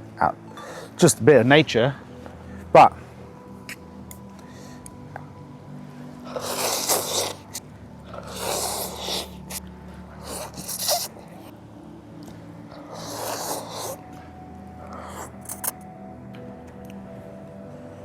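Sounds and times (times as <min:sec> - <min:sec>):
person slurping noodles: 0:06.3 - 0:09.6, 0:10.2 - 0:11.5, 0:12.8 - 0:14.0, 0:14.9 - 0:15.7.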